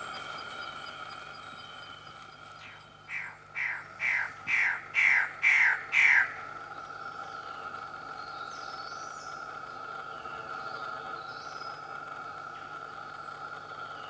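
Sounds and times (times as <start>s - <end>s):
faint high bird notes: 0.0s - 6.3s
bird calling down-slurred notes: 0.0s - 11.9s
high insect drone: 0.0s - 14.0s.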